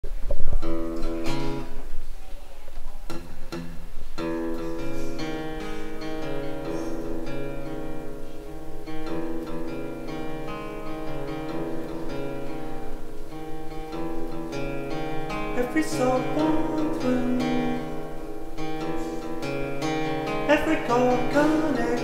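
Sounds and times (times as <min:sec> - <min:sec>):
acoustic guitar strumming: 0:00.0 - 0:02.1, 0:03.1 - 0:22.0.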